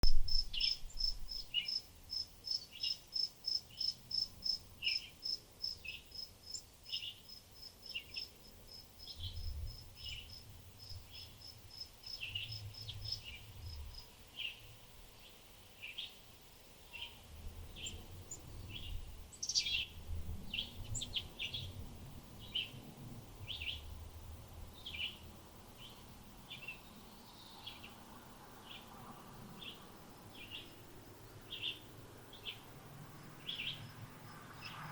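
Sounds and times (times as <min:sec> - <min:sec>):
birds chirping: 0:00.0 - 0:01.8, 0:16.9 - 0:21.8, 0:29.5 - 0:32.7, 0:33.4 - 0:34.0.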